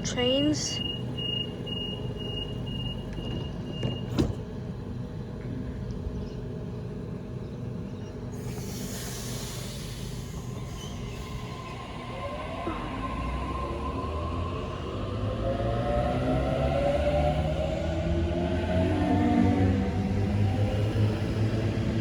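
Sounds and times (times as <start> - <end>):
electric train humming: 0.0 - 22.0
hiss of air: 8.4 - 11.4.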